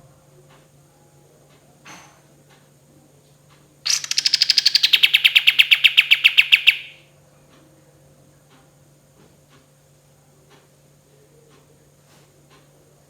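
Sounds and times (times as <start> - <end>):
bulbul trilling: 3.9 - 7.0.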